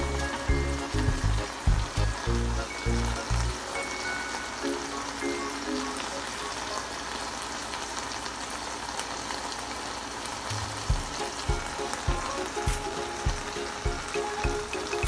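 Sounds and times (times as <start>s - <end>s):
background music with low beat: 0.0s - 3.6s, 10.5s - 15.0s
tuna steak sizzling in oil: 0.0s - 15.0s.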